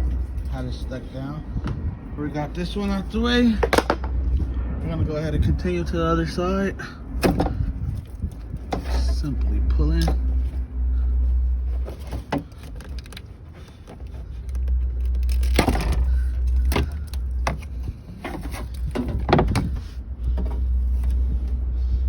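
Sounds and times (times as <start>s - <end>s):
steady low rumble: 0.0s - 22.0s
plastic panel clicking and creaking: 12.0s - 21.2s.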